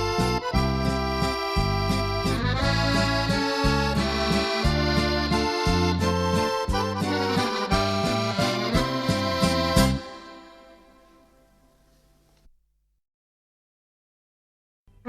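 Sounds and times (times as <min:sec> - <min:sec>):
bass line: 0:00.0 - 0:11.0
accordion playing chords: 0:00.0 - 0:12.5.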